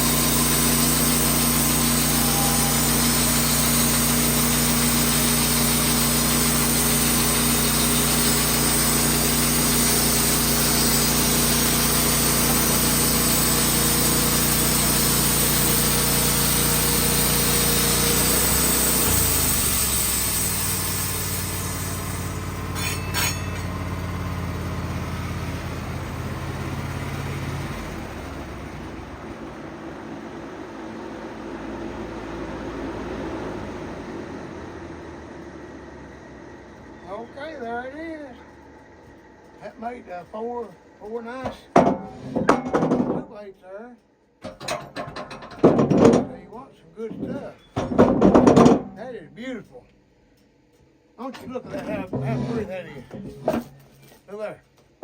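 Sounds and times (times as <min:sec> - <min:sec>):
band saw cutting log: 0:00.0 - 0:29.4, 0:51.4 - 0:54.0
sawmill engine running: 0:00.0 - 0:43.3, 0:51.2 - 0:54.5.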